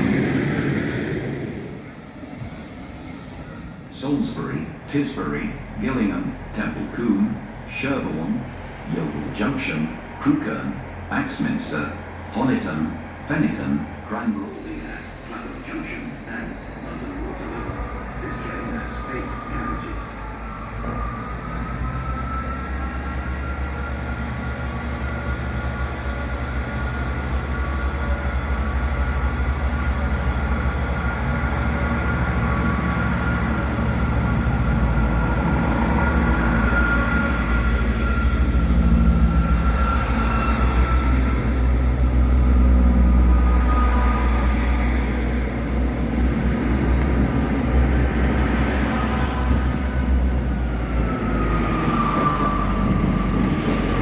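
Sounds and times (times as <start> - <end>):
train rumble: 0.0 - 54.0
faint high whine: 29.7 - 46.1.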